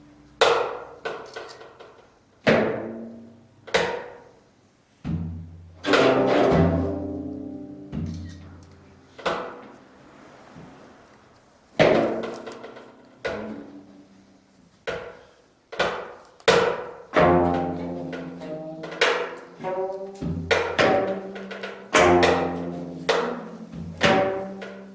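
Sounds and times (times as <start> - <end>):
plucked zither notes: 5.8 - 9.0, 17.2 - 24.9.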